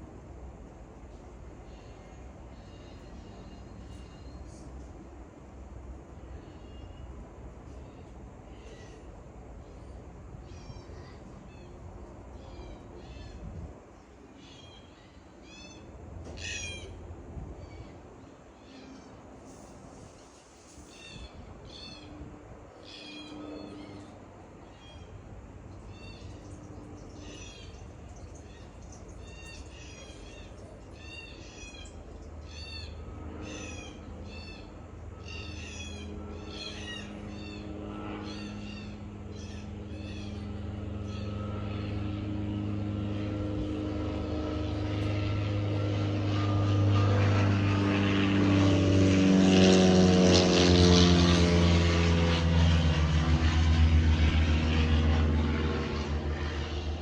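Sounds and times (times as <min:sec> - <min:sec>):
engine passing by: 0:15.4 - 0:57.0
birds chirping: 0:22.8 - 0:43.4.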